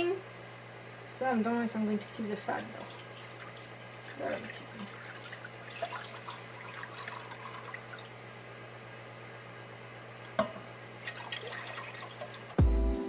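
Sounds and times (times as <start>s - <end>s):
liquid dripping and splashing: 1.8s - 8.2s, 11.0s - 12.6s.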